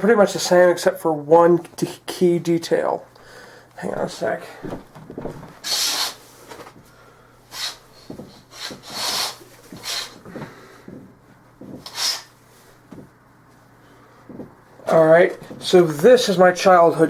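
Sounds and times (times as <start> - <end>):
rubbing and rustling handling noise: 3.8 - 17.0.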